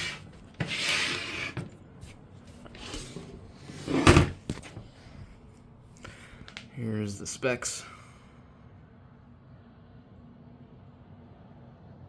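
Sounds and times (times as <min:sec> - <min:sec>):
fan scuffing and scraping: 0:00.0 - 0:05.4.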